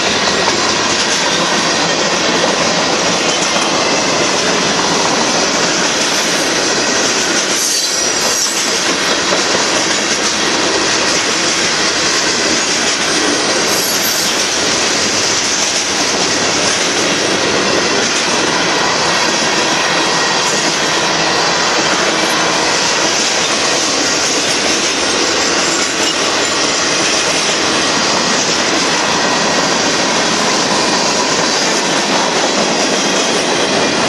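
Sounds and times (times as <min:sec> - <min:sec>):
freight train rolling past: 0:00.0 - 0:34.0.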